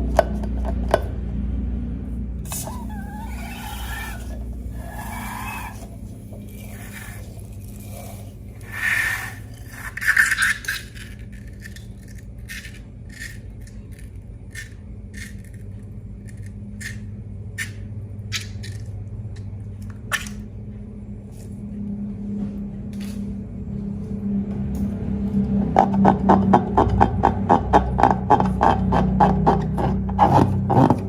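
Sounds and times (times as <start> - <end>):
steady low hum: 0.0 - 31.0
scraping bursts: 2.5 - 11.6.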